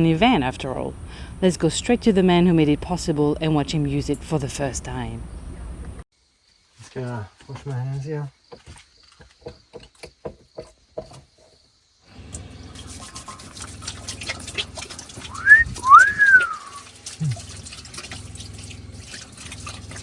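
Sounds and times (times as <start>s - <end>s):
steady low hum: 0.0s - 6.0s
water running from tap into sink: 12.3s - 20.0s
loud rising and falling whistle: 15.3s - 16.8s.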